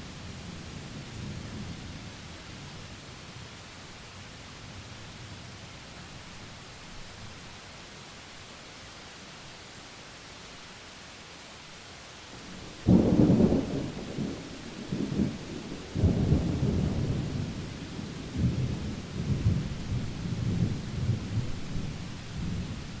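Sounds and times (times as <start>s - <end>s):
rain hiss: 0.0s - 23.0s
thunder rumbling: 12.6s - 23.0s.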